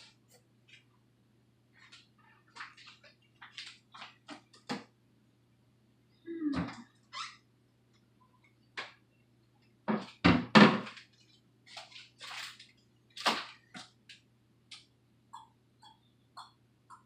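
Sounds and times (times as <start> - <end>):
packing paper rustling and crinkling: 10.9 - 13.7.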